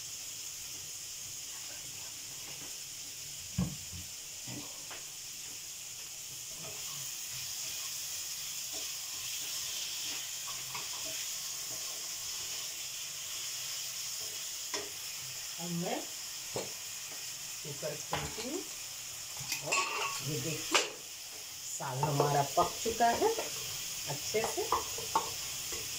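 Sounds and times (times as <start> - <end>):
masala sizzling in a pan: 0.0 - 25.9
wooden spatula scraping and tapping pan: 21.8 - 23.7, 24.3 - 25.9.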